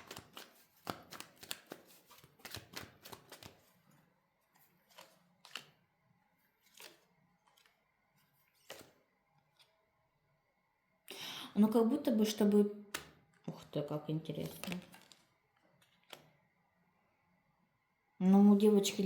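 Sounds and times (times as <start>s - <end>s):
cards being shuffled: 0.0s - 5.9s, 6.5s - 9.8s, 14.3s - 16.4s.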